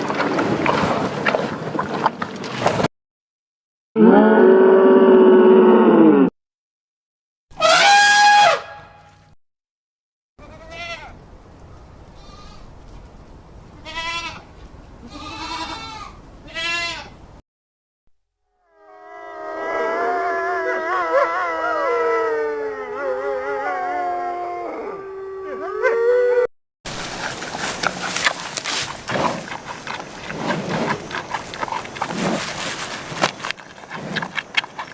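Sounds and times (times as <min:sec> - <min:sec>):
animal calls and snuffles: 0:26.9 - 0:34.9.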